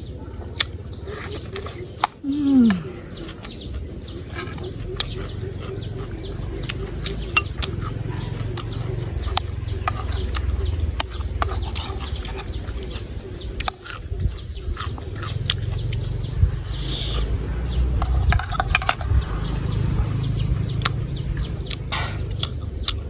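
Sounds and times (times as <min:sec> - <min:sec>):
mouth clicks and smacks chewing: 0:00.3 - 0:17.4, 0:20.6 - 0:23.0
low rumble: 0:04.8 - 0:22.9.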